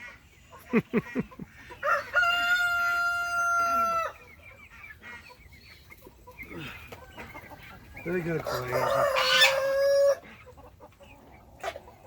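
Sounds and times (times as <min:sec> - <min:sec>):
chickens clucking: 0:00.0 - 0:12.0
rooster crowing: 0:01.8 - 0:04.2, 0:08.5 - 0:10.2.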